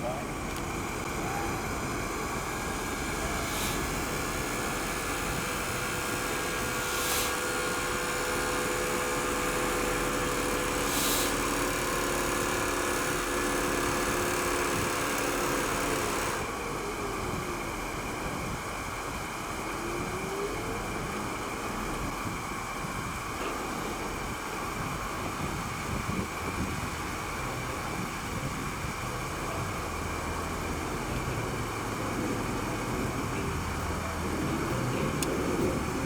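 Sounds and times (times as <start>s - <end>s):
car engine humming: 0.0s - 17.2s, 29.0s - 36.0s
wide hiss: 2.1s - 16.4s.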